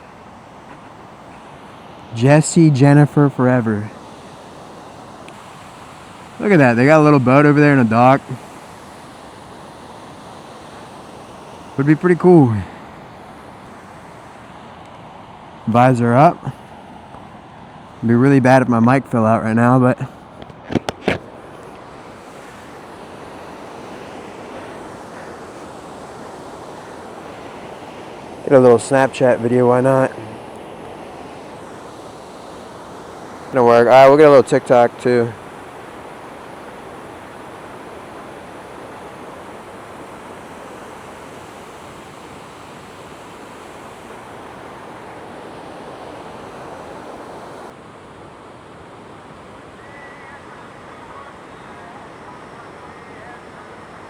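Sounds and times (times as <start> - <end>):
waterfall rushing: 0.0 - 14.5.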